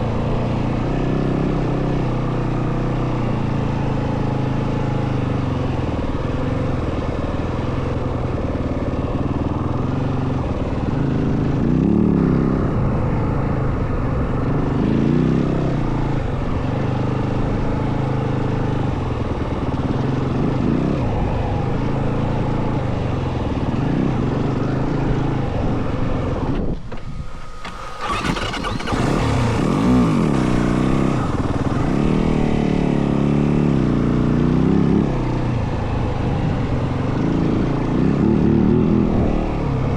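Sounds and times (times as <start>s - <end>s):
dirt bike engine revving: 27.6s - 33.6s.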